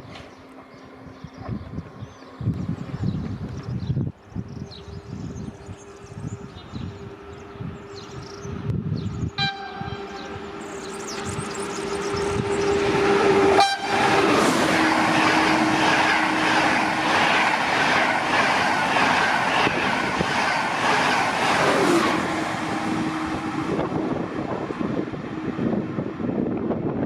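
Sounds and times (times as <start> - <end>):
train horn: 9.3 - 10.6, 11.8 - 16.5.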